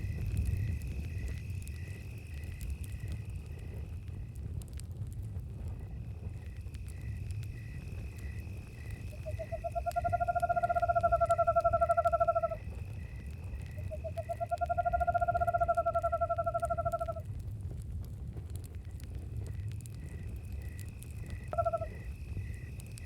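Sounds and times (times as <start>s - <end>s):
campfire crackling: 0.0s - 23.0s
crickets chirping: 0.0s - 23.0s
low rumble of fire: 0.0s - 23.0s
owl trilling: 9.2s - 12.6s, 13.8s - 17.2s, 21.5s - 22.0s.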